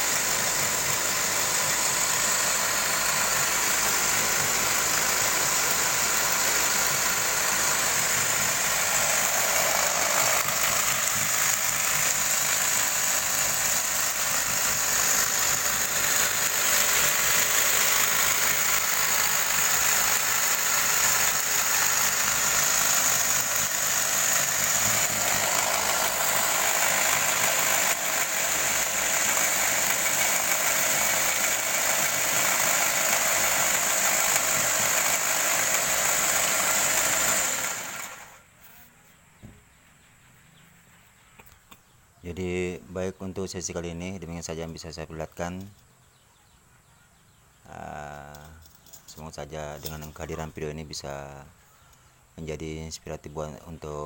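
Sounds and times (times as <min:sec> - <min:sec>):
belt grinder whirring: 0:00.0 - 0:38.5.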